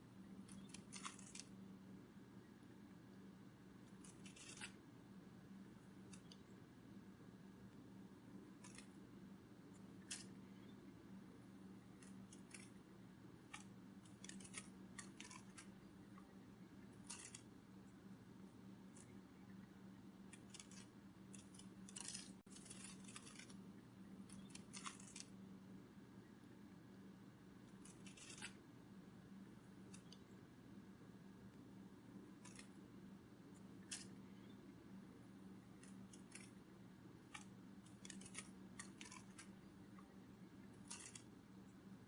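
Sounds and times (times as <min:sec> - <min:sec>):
faint steady hum: 0:00.0 - 0:42.0
soft ticks and clicks: 0:06.0 - 0:06.5, 0:29.8 - 0:30.3.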